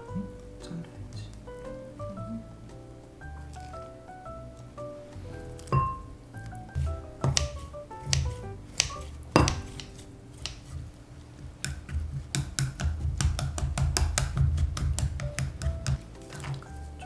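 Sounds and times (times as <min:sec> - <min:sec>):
utensils clicking and tapping: 0:05.6 - 0:10.7, 0:11.6 - 0:16.7
utensils knocking on cookware: 0:05.7 - 0:10.6.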